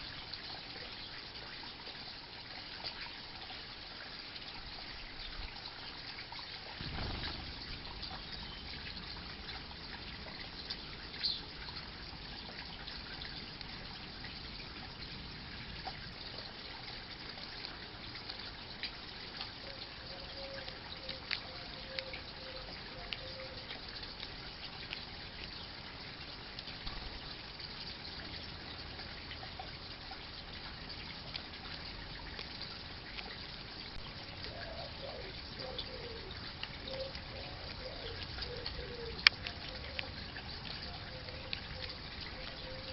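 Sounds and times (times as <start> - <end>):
trickling water: 0.0 - 42.9
small ticks: 15.8 - 42.9.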